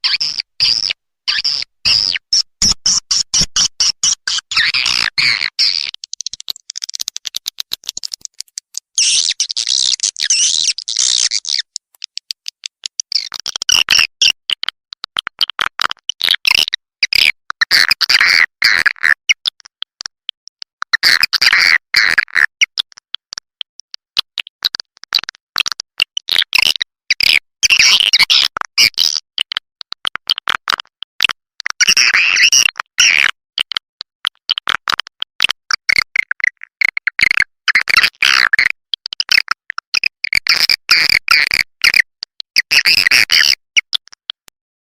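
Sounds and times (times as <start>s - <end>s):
high twittering chirps: 0.1s - 7.1s, 9.0s - 11.8s
rapid dry clicks: 5.9s - 13.4s.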